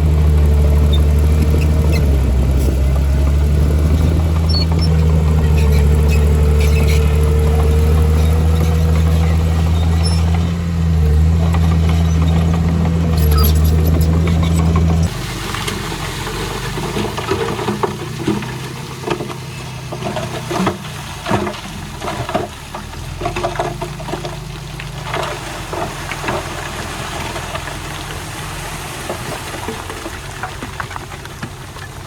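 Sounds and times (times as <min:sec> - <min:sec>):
diesel earthmoving machine running: 0:00.0 - 0:32.0
metallic clanks and rattles: 0:00.6 - 0:15.8.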